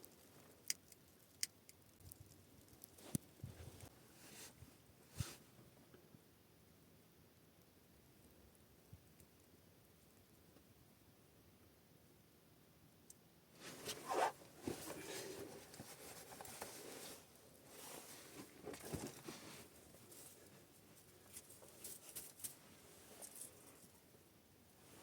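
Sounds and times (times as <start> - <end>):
rustling and scraping handling: 2.7 - 5.6, 13.6 - 24.1.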